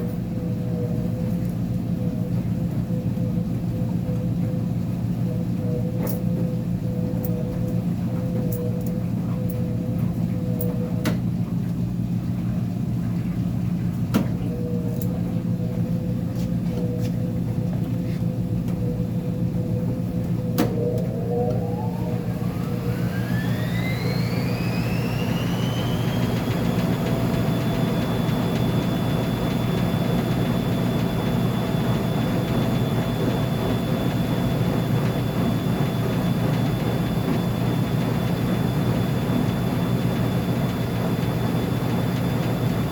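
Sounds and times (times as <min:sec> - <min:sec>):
steady low hum: 0:00.0 - 0:42.9
washing machine motor whine: 0:00.0 - 0:42.9.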